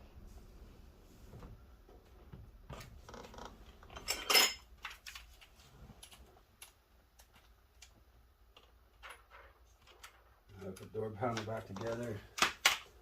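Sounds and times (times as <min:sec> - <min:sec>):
metal parts clinking: 0:03.9 - 0:05.2.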